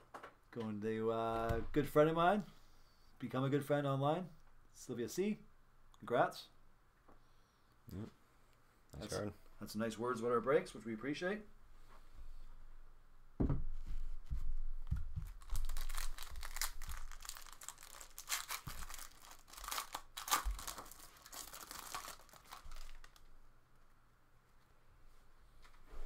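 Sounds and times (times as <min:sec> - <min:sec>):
foil wrapper tearing and crinkling: 0:15.2 - 0:23.3.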